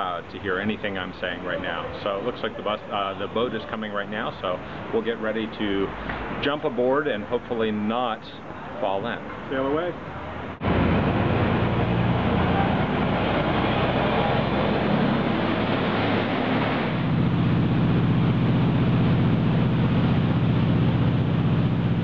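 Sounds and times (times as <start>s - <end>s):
boat diesel engine: 0.0s - 6.4s, 7.1s - 22.0s
water rushing wash: 0.3s - 22.0s.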